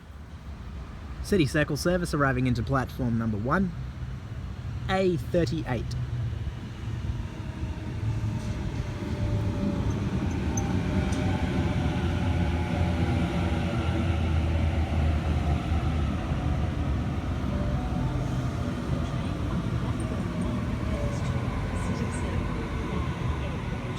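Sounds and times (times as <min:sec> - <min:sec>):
electric train rumbling: 0:05.8 - 0:23.9
faint whining tones: 0:07.7 - 0:13.0, 0:14.0 - 0:23.9.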